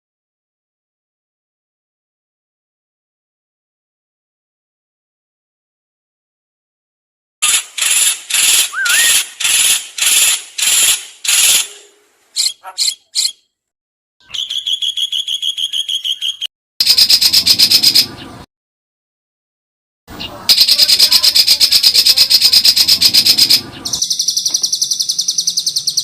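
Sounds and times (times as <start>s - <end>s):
fast rattling bird trills: 7.4s - 13.4s, 14.2s - 18.4s, 20.5s - 26.0s
harsh songbird notes: 7.4s - 13.5s, 14.2s - 18.5s, 20.1s - 26.0s
short high bird notes: 8.7s - 9.3s.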